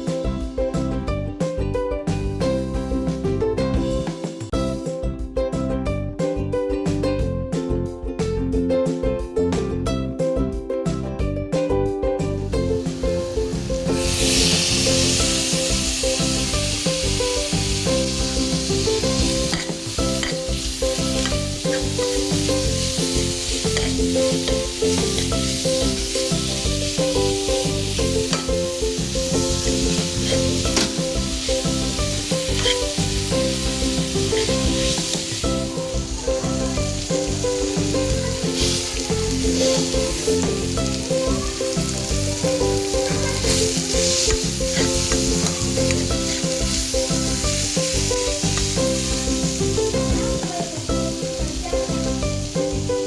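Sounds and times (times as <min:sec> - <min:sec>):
background music: 0:00.0 - 0:53.0
food sizzling in a pan: 0:12.4 - 0:53.0.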